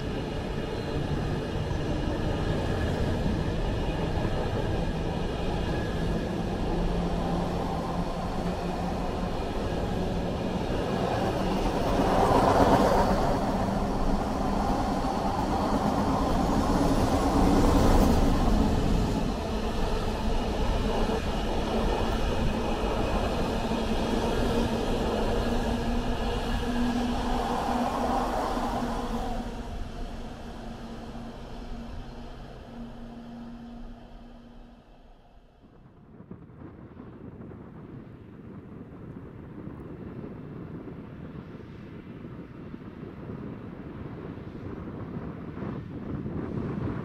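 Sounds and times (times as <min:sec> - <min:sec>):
freight train rolling past: 0:00.0 - 0:35.4.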